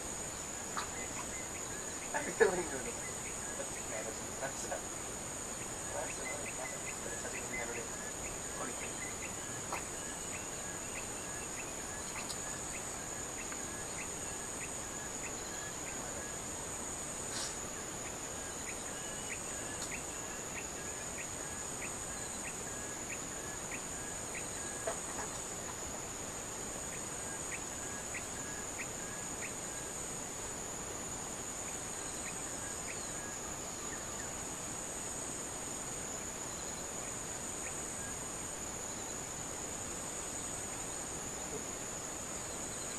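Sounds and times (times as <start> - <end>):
insects chirring high trill: 0.0 - 42.9.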